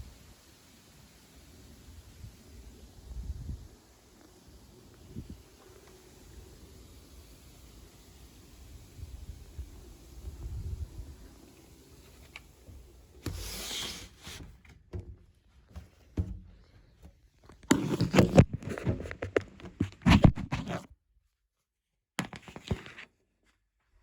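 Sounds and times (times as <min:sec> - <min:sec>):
rustling and scraping: 0:12.0 - 0:20.9, 0:22.2 - 0:23.2
small knocks: 0:14.4 - 0:20.4.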